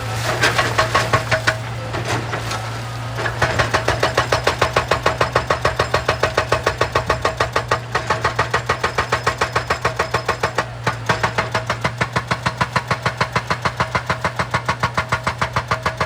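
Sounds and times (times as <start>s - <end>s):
diesel engine hum: 0.0s - 16.0s
hydraulic breaker hammering rock: 0.2s - 16.0s
scattered knocks: 0.4s - 2.3s, 3.2s - 16.0s.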